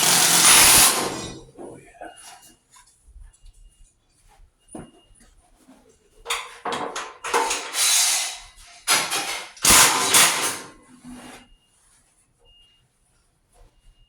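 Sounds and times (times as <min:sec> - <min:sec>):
metal tools clattering: 0:00.0 - 0:01.8, 0:06.3 - 0:10.8.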